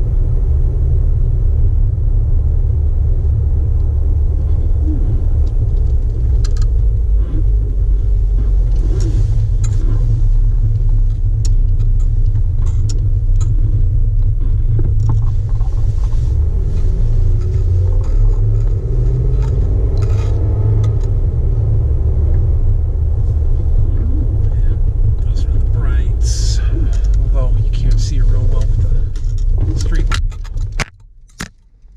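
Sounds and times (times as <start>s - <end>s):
car engine and road rumble: 0.0s - 31.9s
light clicks and rattles: 5.4s - 21.2s, 23.9s - 31.9s.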